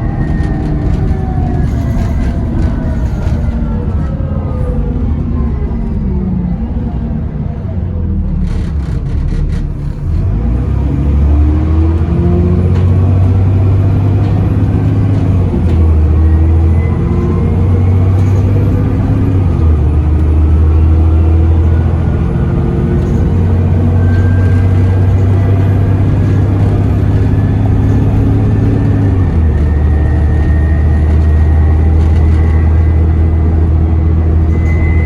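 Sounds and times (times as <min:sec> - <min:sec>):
bus diesel engine pulling: 0:00.0 - 0:35.0
high turbocharger whistle: 0:29.7 - 0:35.0.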